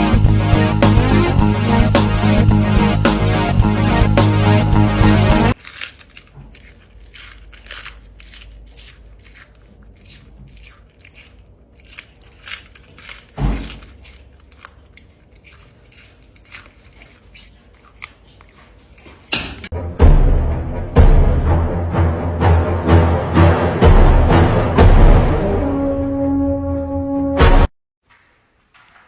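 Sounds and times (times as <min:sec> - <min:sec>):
music: 0:00.0 - 0:05.6, 0:19.8 - 0:27.7
crunching and chewing: 0:00.0 - 0:19.8.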